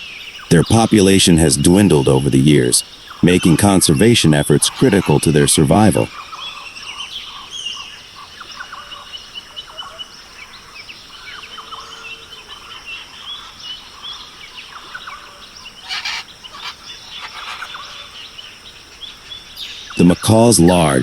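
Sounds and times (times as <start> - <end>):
bird chirps and calls: 2.8 - 7.9, 12.7 - 20.2
harsh bird call: 3.2 - 6.1, 15.7 - 18.2.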